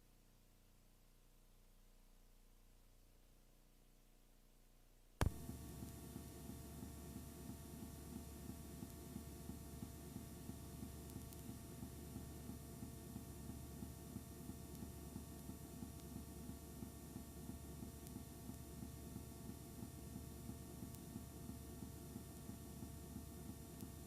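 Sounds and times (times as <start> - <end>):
sharp click: 5.2 - 5.9
pulsing electrical hum: 5.2 - 24.0.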